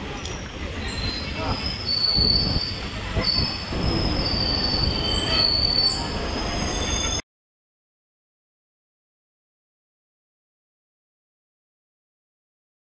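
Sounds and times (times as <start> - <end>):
train rumbling on rails: 0.0 - 7.2
train wheels squealing: 0.8 - 7.2.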